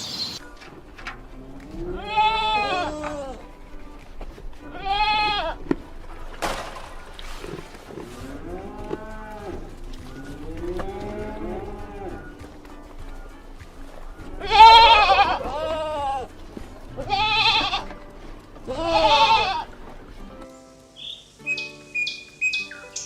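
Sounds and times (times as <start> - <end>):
farm animals calling: 0.0 - 23.0.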